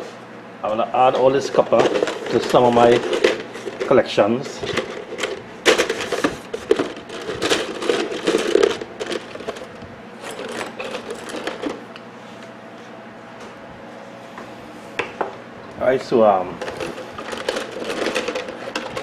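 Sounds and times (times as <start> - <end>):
copper pieces clinking: 1.5 - 4.0, 4.7 - 11.8, 16.6 - 19.0.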